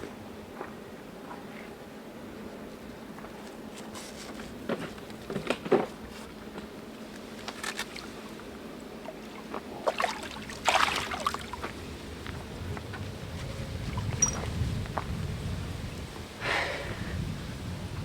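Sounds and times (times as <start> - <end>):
fish splashing in water: 9.0 - 11.8.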